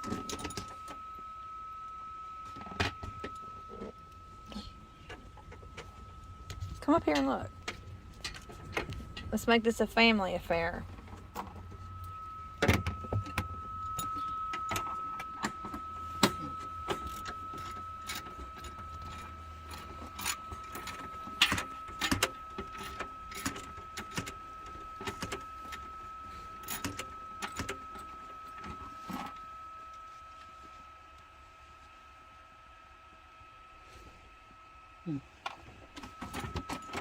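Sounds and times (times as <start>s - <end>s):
steady high thin tone: 0.0s - 35.3s
metal tools clinking: 10.9s - 29.3s.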